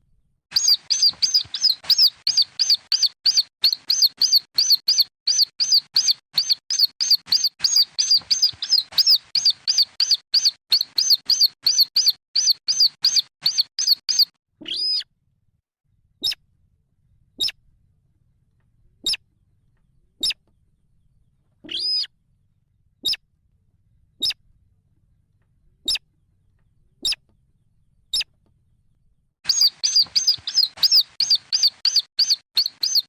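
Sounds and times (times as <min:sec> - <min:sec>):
bird chicks peeping: 0:00.5 - 0:15.0, 0:29.5 - 0:33.0.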